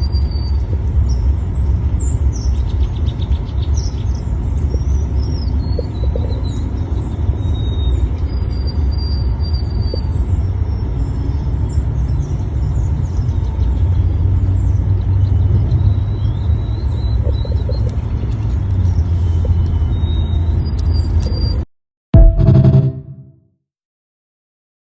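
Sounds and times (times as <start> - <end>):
steady low rumble: 0.0 - 19.7
thin high bird calls: 2.4 - 10.5.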